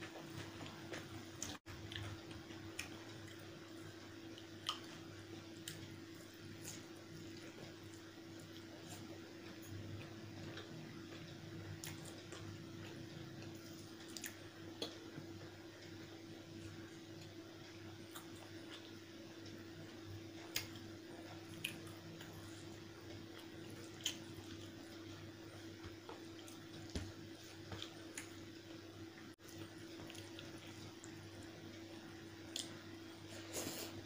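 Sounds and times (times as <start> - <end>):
wet chewing: 20.4 - 25.2.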